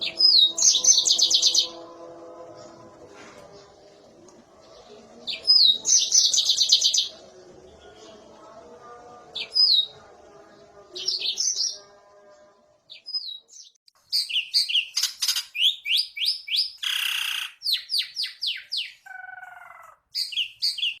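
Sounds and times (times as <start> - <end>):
canary singing: 0.0 - 21.0.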